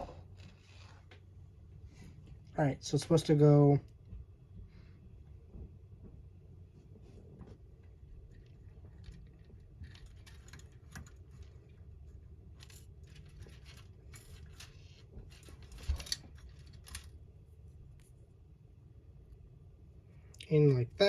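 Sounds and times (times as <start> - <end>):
low steady hum: 0.0 - 21.0
plastic parts clicking and rustling: 7.8 - 17.2.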